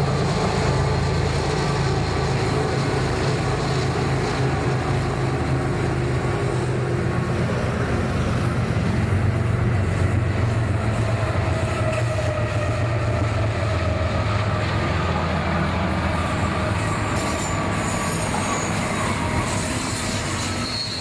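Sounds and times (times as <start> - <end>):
train engine drone: 0.0 - 21.0.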